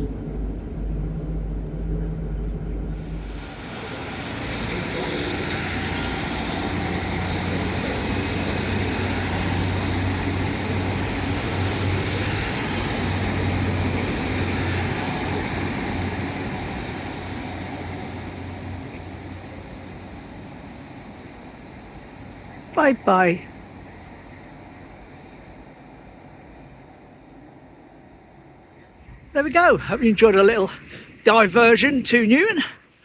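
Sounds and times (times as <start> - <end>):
wheels rumbling on track: 0.0 - 22.7
train interior hum: 0.0 - 33.0.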